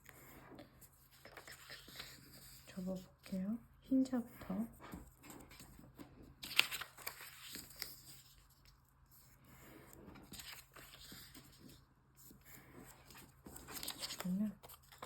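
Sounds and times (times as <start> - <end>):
paper rustling and crinkling: 0.1 - 3.4, 4.7 - 15.0
paper crackle: 6.3 - 8.8, 10.2 - 15.0.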